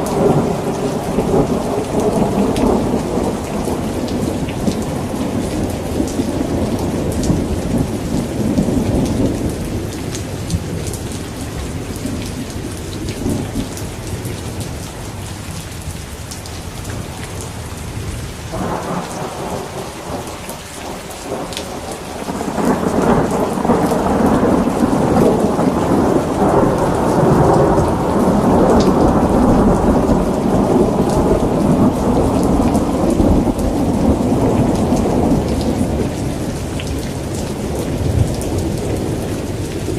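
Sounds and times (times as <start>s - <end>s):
rolling thunder: 0.0s - 14.6s, 16.9s - 39.9s
steady rain: 0.0s - 39.9s.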